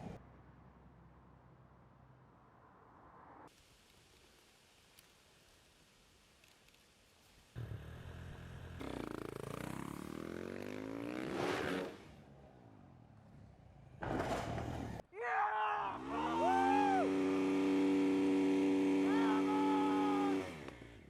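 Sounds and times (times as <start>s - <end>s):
motorcycle engine revving: 7.6s - 12.4s, 16.0s - 21.0s.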